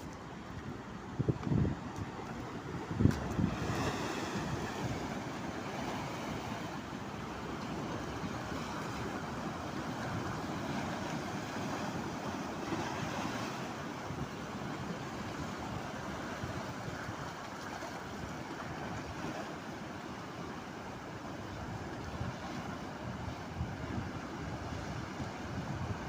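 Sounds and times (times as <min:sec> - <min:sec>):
sea waves: 0:00.0 - 0:26.0
wind buffeting microphone: 0:00.6 - 0:06.8, 0:21.4 - 0:26.0.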